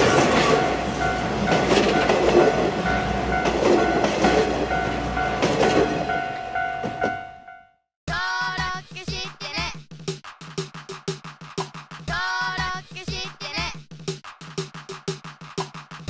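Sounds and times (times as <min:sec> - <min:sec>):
train wheels clattering over rail joints: 0:00.0 - 0:06.2.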